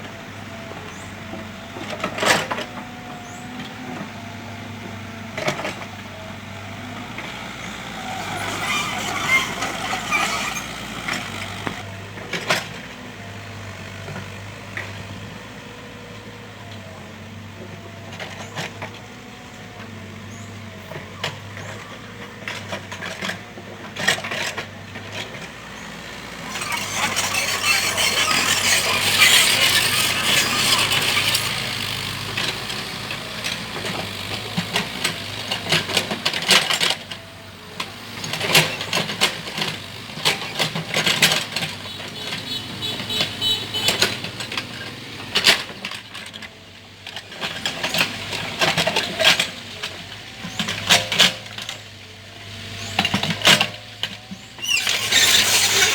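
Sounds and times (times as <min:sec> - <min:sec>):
mini excavator engine running: 0:00.0 - 0:55.9
loud rasping noise: 0:07.0 - 0:11.8, 0:26.0 - 0:35.5, 0:54.6 - 0:55.9.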